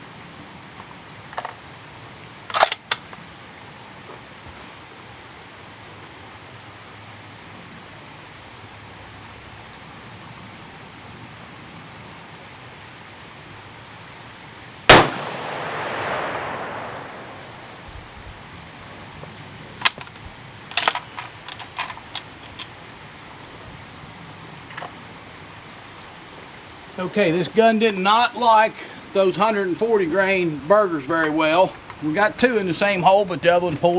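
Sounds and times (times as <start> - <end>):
rifle shot echoing: 14.9 - 17.9
rifle bolt clicking: 19.8 - 22.7.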